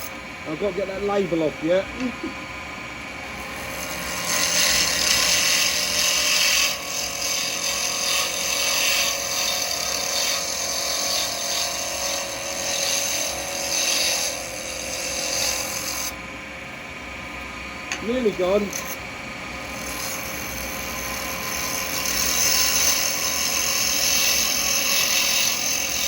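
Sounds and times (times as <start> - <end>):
lathe humming: 0.0 - 26.0
chisel scraping on spinning lathe: 3.6 - 16.1, 17.9 - 19.0, 19.7 - 26.0.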